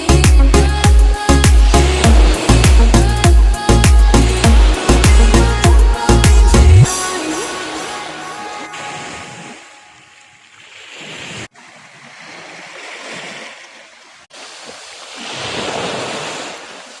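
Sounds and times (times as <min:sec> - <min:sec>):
sea surf washing onto beach: 0:00.9 - 0:11.5.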